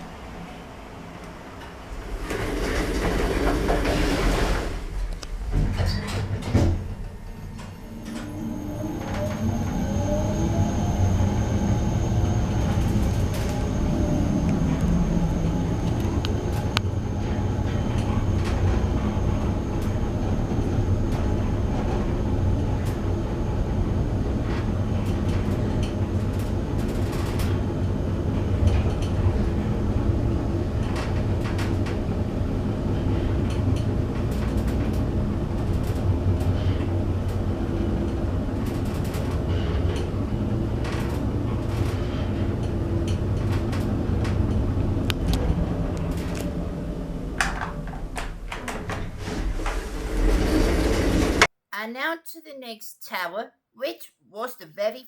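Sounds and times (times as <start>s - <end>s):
rising whines of lift: 0.0s - 24.4s
lift car humming and rumbling: 0.0s - 51.5s.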